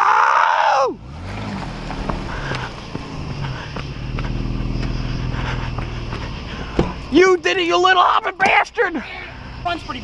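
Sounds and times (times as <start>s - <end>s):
vehicle engine running under load: 0.9s - 10.0s
knocks and thumps from vehicle: 1.4s - 8.7s.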